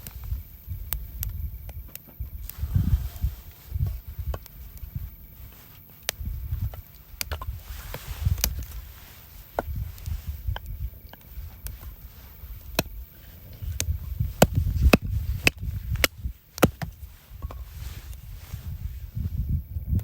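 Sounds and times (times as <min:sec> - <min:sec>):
hatchet chopping wood: 0:13.8 - 0:17.0.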